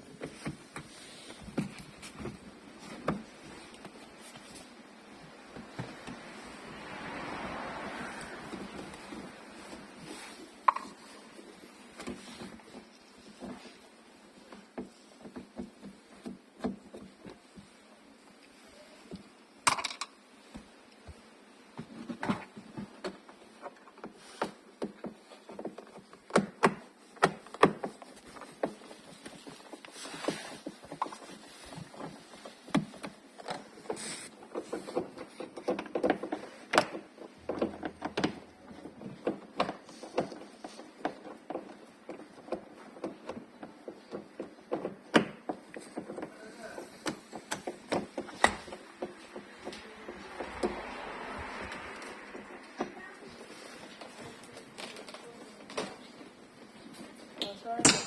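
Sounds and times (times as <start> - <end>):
hand tools clicking and tapping: 10.6 - 13.8, 22.7 - 58.0.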